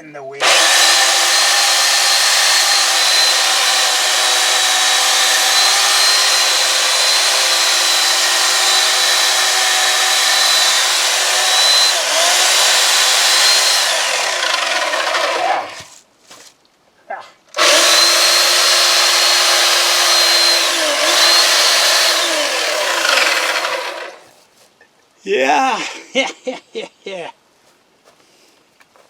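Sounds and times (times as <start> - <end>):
electric chainsaw whining: 0.4 - 15.9, 17.6 - 24.3.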